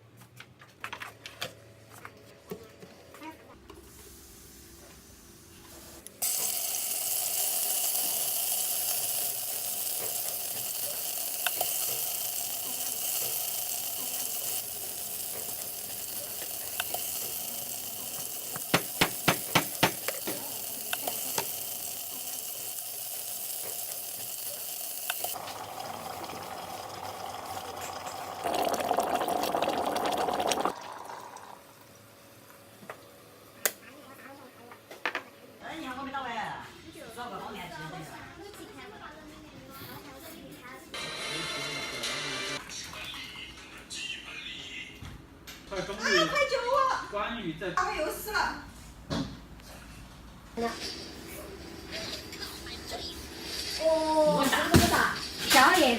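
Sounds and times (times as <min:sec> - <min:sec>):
food sizzling in hot oil: 0:06.2 - 0:31.8.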